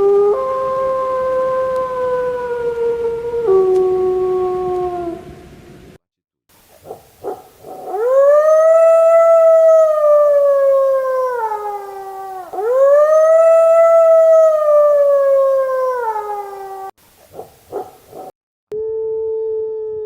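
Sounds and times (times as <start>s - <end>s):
wolf howling: 0.0s - 5.3s, 7.7s - 16.9s.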